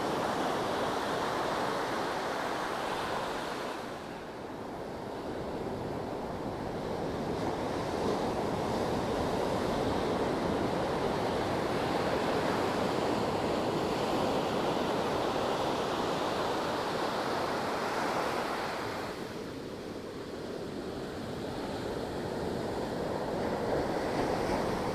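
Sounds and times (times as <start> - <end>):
sea waves washing ashore: 0.0 - 24.9.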